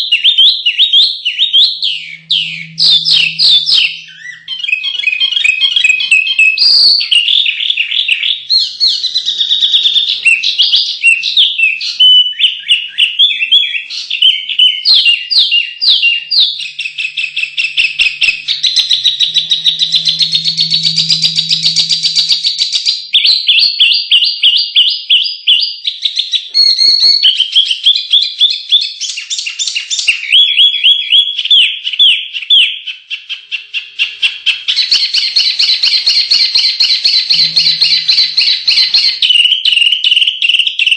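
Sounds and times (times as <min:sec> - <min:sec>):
songbirds trilling and chattering: 0:01.2 - 0:22.8, 0:34.8 - 0:39.3.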